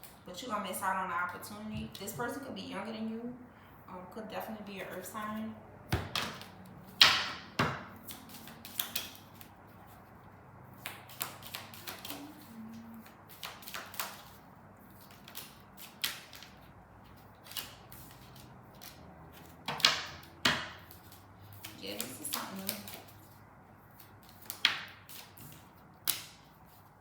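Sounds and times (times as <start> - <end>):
cards tapping and flicking: 5.9 - 9.6, 10.8 - 12.4, 13.0 - 14.4, 15.0 - 23.3, 23.9 - 26.7.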